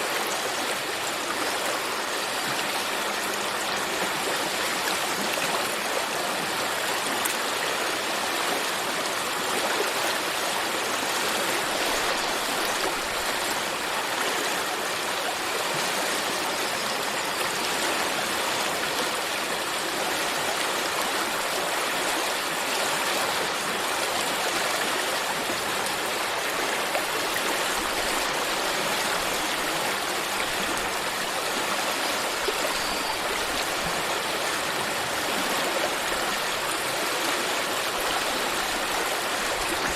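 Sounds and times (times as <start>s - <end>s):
stream of water running: 0.0s - 39.9s.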